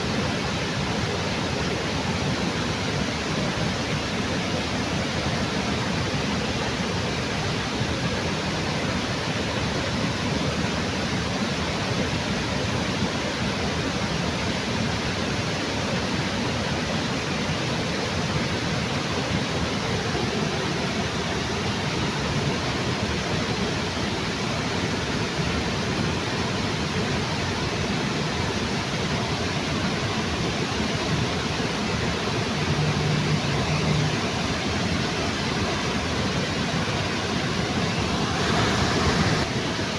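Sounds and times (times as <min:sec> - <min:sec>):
waterfall rushing: 0:17.1 - 0:39.9.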